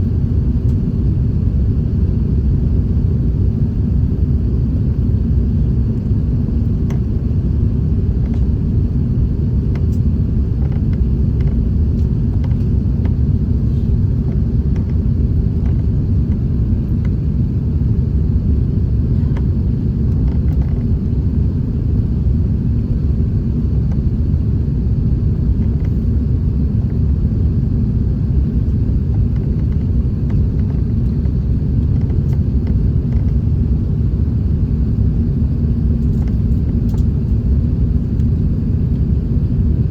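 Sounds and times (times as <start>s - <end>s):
airplane cabin engine rumble: 0.0s - 39.9s
cabin ticks and rattles: 10.6s - 13.2s, 15.6s - 17.2s.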